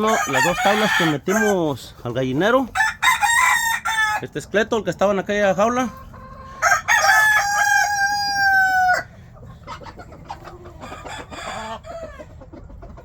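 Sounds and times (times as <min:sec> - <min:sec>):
rooster crowing: 0:00.0 - 0:01.6, 0:02.8 - 0:04.2, 0:06.6 - 0:09.1.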